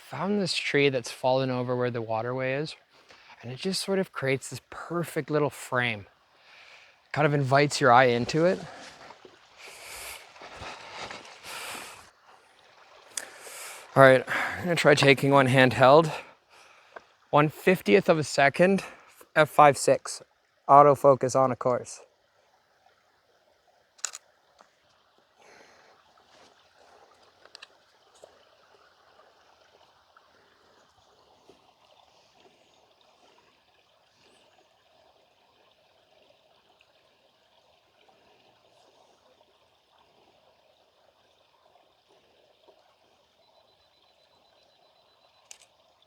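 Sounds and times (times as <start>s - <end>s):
stream trickling over rocks: 0.0s - 46.0s.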